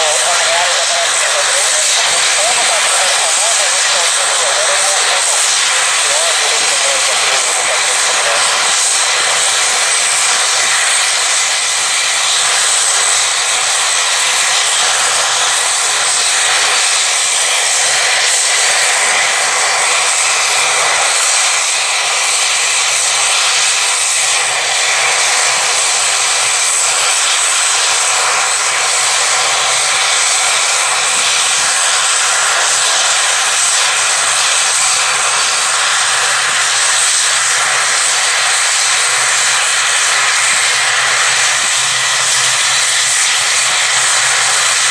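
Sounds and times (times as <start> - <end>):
aircraft engines running: 0.0 - 44.9.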